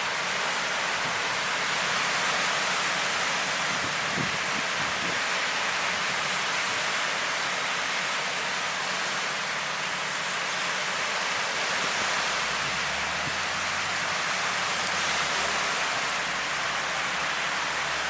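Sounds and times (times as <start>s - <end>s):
ocean surf washing onto beach: 0.0s - 18.0s.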